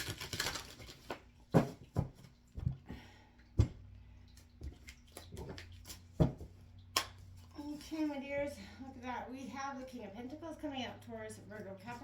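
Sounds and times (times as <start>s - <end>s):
cards being shuffled: 0.0s - 1.2s.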